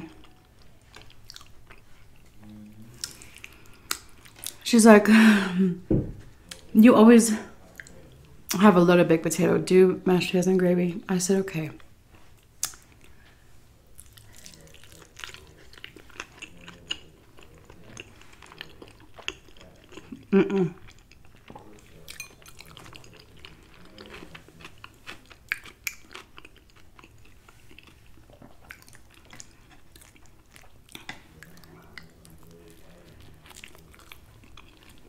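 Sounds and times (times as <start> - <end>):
wet chewing: 0.1 - 4.6, 12.4 - 35.0.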